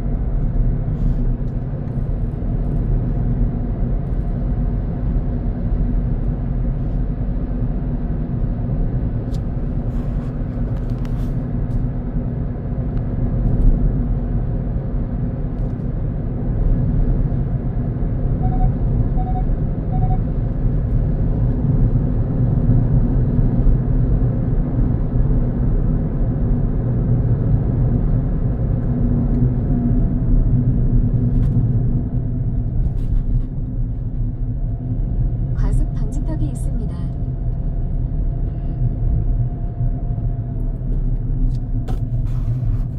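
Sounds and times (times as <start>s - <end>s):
car engine and road rumble: 0.0s - 42.9s
short electronic beeps: 18.4s - 20.3s.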